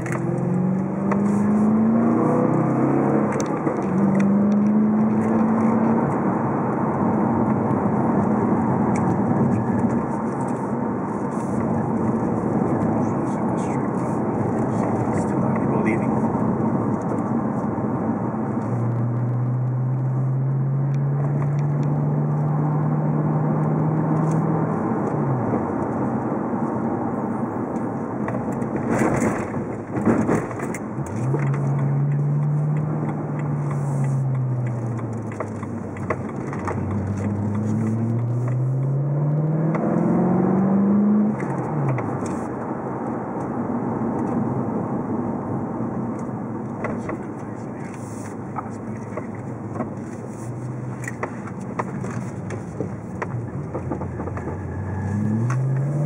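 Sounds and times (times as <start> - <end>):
car engine accelerating: 0.0 - 56.0
road noise: 0.0 - 56.0.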